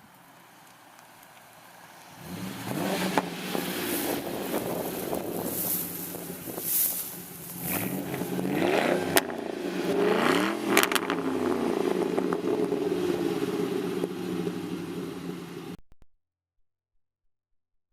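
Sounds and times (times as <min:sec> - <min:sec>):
exhaust cracks: 0:02.0 - 0:15.8
car engine revving: 0:02.1 - 0:15.8.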